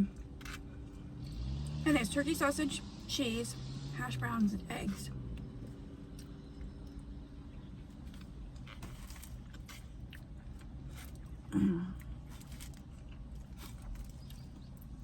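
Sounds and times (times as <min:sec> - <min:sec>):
person chewing food: 0:05.7 - 0:15.0.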